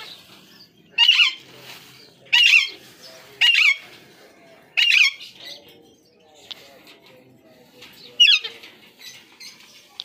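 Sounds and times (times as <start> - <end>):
parakeet screeching: 1.0 - 1.4, 4.8 - 5.2.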